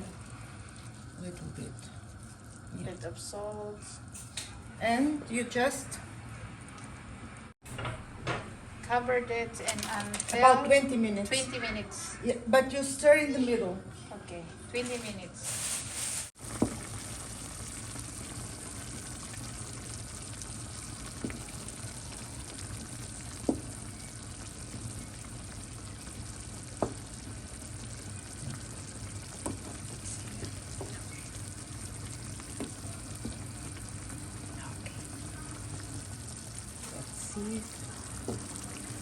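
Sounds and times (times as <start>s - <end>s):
pot sizzling with pops: 0.0s - 5.9s, 16.2s - 39.0s.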